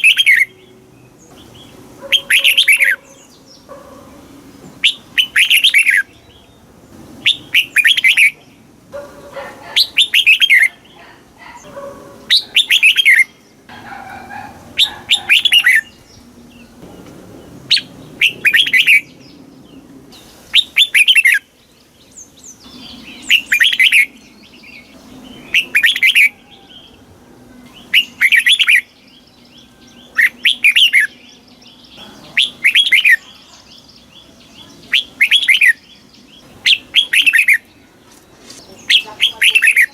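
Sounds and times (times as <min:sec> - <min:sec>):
bird singing whistled phrases: 0:12.3 - 0:13.4, 0:22.7 - 0:24.2, 0:25.4 - 0:27.0, 0:27.7 - 0:31.4, 0:32.3 - 0:33.9, 0:34.5 - 0:35.8, 0:36.6 - 0:37.7.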